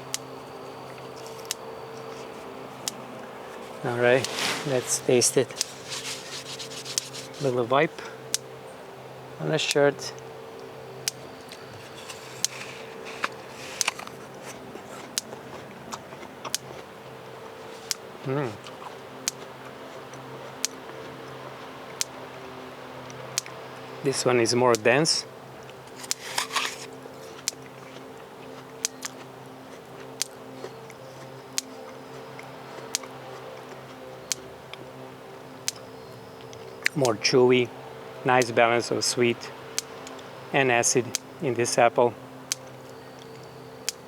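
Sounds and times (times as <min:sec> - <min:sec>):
faint steady hum: 0:00.0 - 0:44.0
person crunching an apple: 0:00.9 - 0:07.6, 0:11.1 - 0:22.2, 0:25.6 - 0:34.4.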